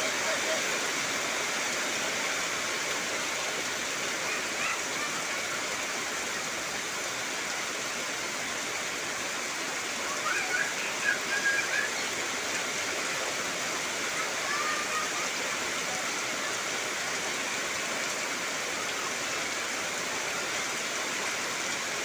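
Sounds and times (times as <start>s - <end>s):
heavy rain hissing: 0.0s - 22.0s.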